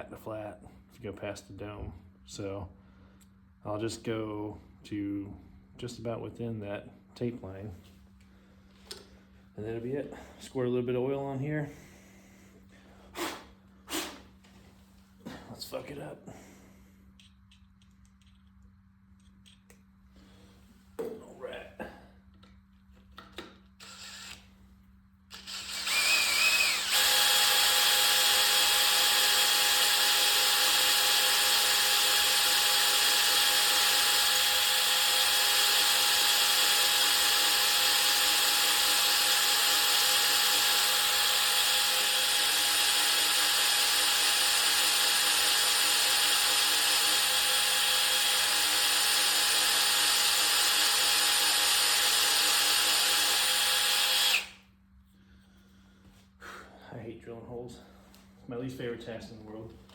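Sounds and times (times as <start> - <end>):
electric drill boring into metal: 23.8 - 24.4, 25.3 - 54.6.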